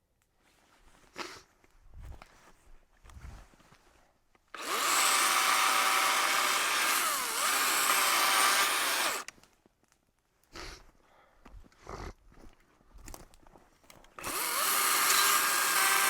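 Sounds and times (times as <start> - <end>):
power saw cutting wood: 4.6 - 9.3, 14.2 - 16.0.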